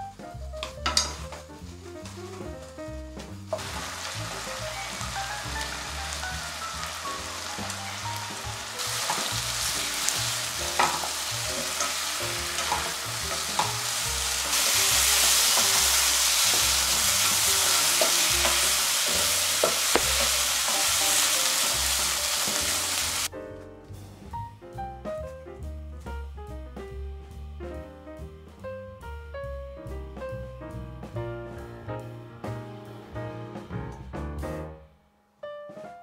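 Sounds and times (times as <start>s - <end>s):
jazz music: 0.0s - 36.0s
wooden spatula clacking on pan: 0.6s - 1.4s, 7.6s - 14.1s, 17.2s - 22.6s
chicken sizzling in frying pan: 0.8s - 23.3s.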